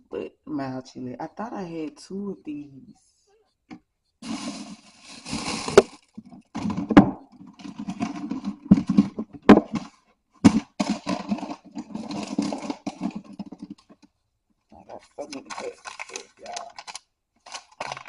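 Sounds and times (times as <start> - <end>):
paper packets rustling: 4.2 - 10.0, 10.6 - 14.0, 15.1 - 18.0.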